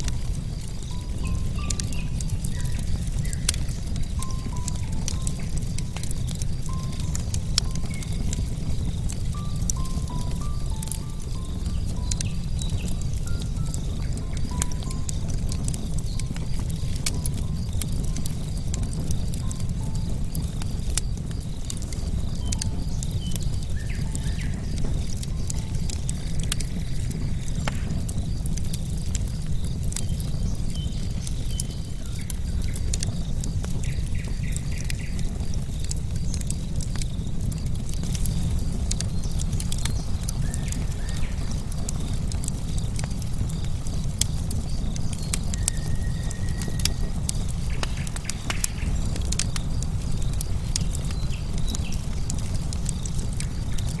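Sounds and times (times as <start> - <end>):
crickets chirring: 0.0 - 54.0
low steady rumble: 0.0 - 54.0
wood fire crackling and popping: 0.0 - 54.0
bird chirping: 0.6 - 28.8, 38.3 - 42.2, 43.4 - 52.7.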